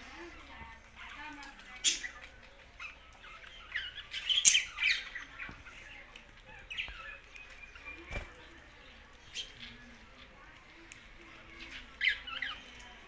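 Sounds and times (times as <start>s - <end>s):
budgerigars chirping: 1.1s - 5.9s.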